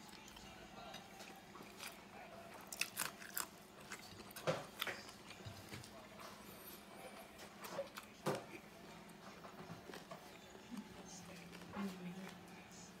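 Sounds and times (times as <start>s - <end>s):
person chewing and biting food: 1.2s - 6.6s.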